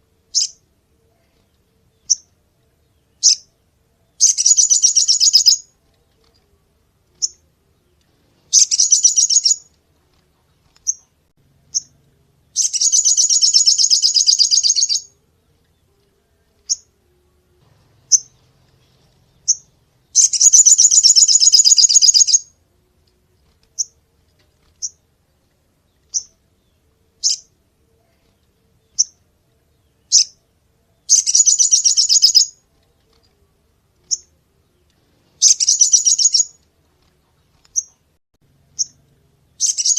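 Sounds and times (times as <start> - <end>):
songbird trilling: 4.2 - 5.7, 8.5 - 9.7, 12.6 - 15.1, 19.4 - 22.5, 31.1 - 32.6, 35.4 - 36.6, 39.6 - 39.9.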